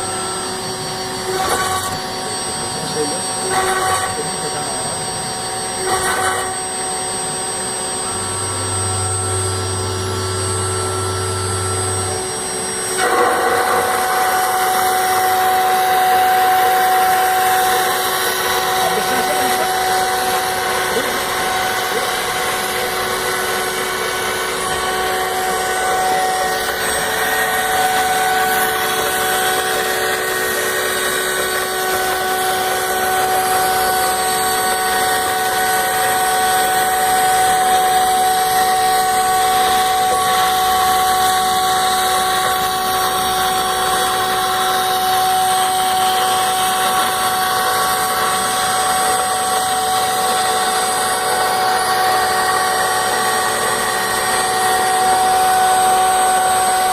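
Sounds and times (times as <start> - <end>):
router spindle whine: 0.0 - 56.9
hiss of cutting acrylic: 13.0 - 34.7.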